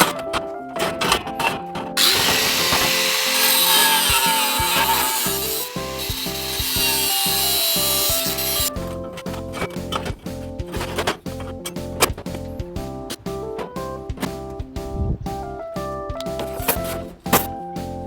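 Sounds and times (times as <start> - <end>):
power tool hissing on steel: 2.0 - 8.7
background music with beat: 2.4 - 18.0.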